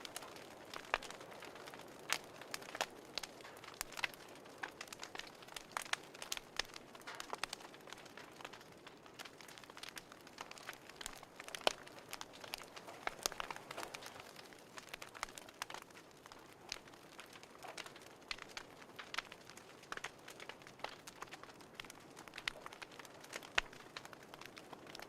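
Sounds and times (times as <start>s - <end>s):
faint fire hiss: 0.0s - 25.0s
fire crackling and popping: 0.0s - 25.0s.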